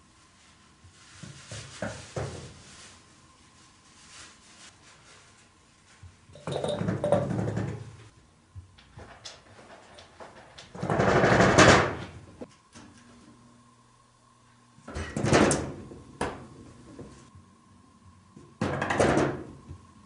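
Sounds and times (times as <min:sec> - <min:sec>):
sliding door rattling in frame: 0:10.7 - 0:12.1.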